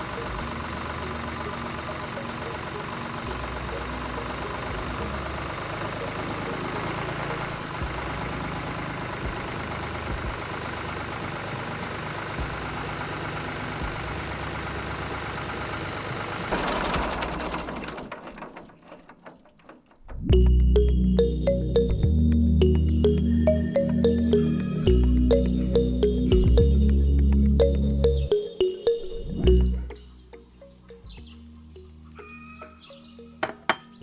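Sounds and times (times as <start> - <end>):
music: 0.0 - 8.2, 20.2 - 34.0
tractor engine running: 0.0 - 33.8.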